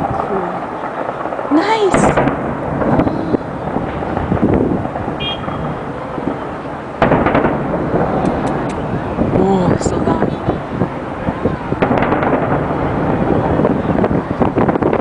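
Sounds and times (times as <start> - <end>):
sharp close cracks: 0.0 - 9.0, 11.7 - 13.2
fireworks and firecrackers banging: 0.0 - 15.0.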